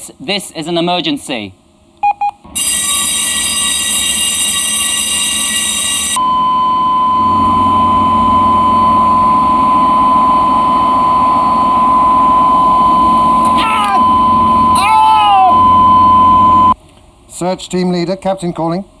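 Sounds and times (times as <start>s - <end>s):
ship machinery noise: 2.5s - 6.2s
alarm bell ringing: 2.5s - 6.6s
steady alarm tone: 2.5s - 16.8s.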